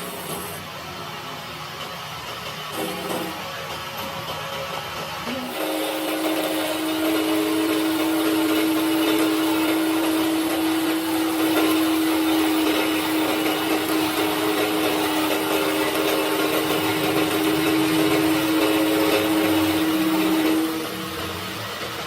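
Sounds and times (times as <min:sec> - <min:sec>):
electric motor whining: 0:05.2 - 0:22.0
broad rushing noise: 0:14.3 - 0:22.0.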